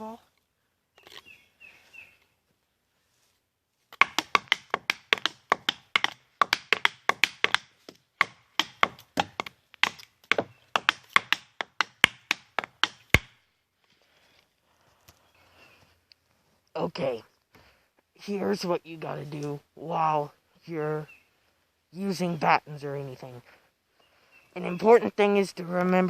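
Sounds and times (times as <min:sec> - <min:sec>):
batons knocking on tree trunk: 0:03.9 - 0:13.4.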